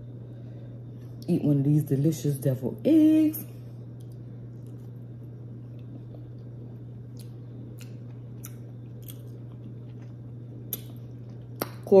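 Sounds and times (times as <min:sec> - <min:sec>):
steady low hum: 0:00.0 - 0:12.0
person chewing: 0:04.0 - 0:11.8
wet mouth clicks: 0:07.1 - 0:09.3, 0:10.7 - 0:11.0.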